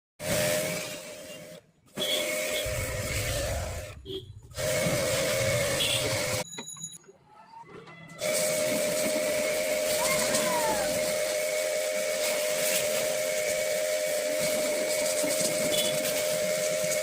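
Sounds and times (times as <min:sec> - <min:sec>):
pressure washer pump whining: 0:00.2 - 0:06.5, 0:08.2 - 0:17.0
water spray hissing: 0:02.0 - 0:06.4, 0:08.2 - 0:17.0.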